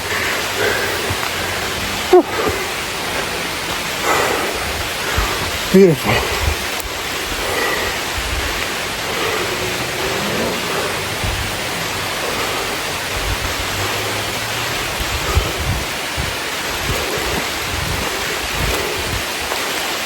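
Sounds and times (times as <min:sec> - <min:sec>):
rain hissing: 0:00.0 - 0:20.0
wind buffeting microphone: 0:00.0 - 0:20.0.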